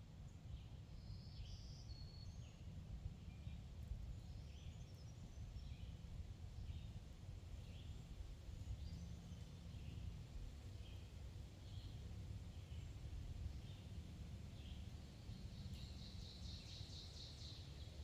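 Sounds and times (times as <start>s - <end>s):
songbirds chirping: 3.3s - 18.0s.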